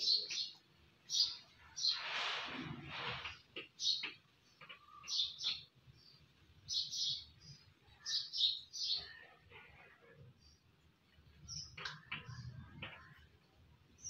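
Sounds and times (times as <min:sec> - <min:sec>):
small bird chirping: 0:00.0 - 0:02.1, 0:03.6 - 0:13.3.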